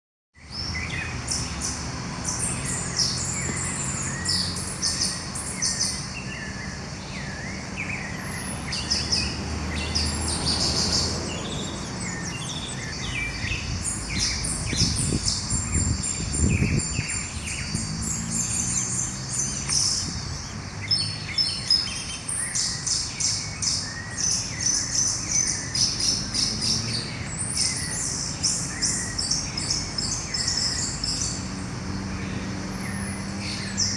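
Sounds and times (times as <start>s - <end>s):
songbirds chirping and trilling: 0.4s - 33.9s.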